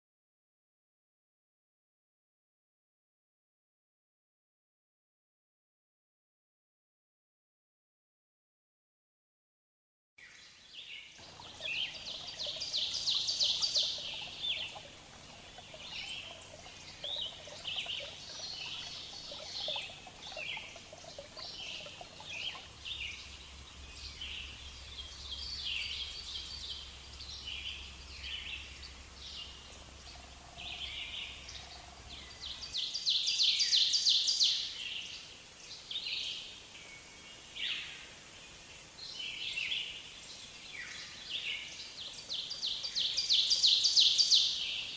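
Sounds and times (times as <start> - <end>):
birds chirping and trilling: 10.9 - 35.2, 39.1 - 44.9
faint low hum: 11.2 - 32.8.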